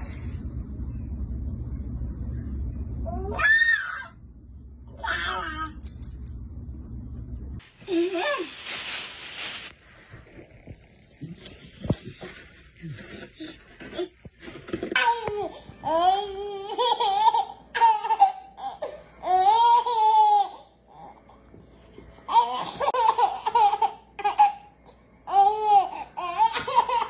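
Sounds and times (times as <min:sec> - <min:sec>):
baby laughing: 0:15.0 - 0:20.6, 0:22.3 - 0:24.7, 0:25.3 - 0:27.0.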